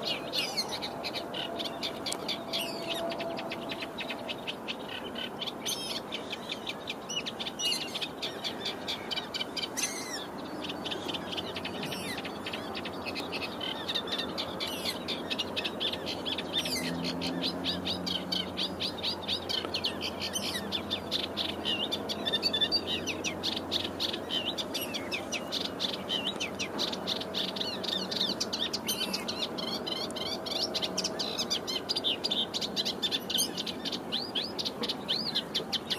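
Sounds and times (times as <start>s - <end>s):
reed warbler singing: 0.0s - 35.9s.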